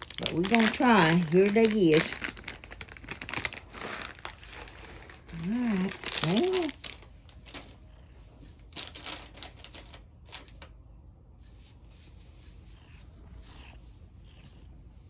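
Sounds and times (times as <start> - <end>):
treats rattling inside bag: 0.0 - 10.7
treat bag crinkling: 0.0 - 10.8.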